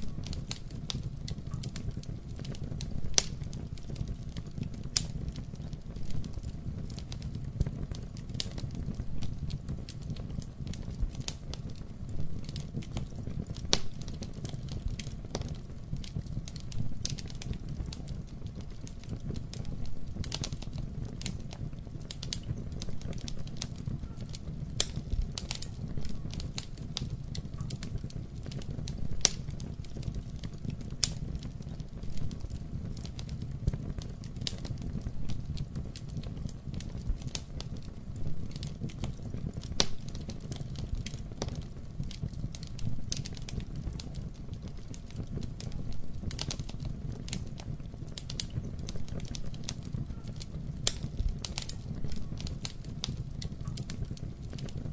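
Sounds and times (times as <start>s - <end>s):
campfire wood crackling: 0.0s - 54.9s
low rumble of fire: 0.0s - 54.9s.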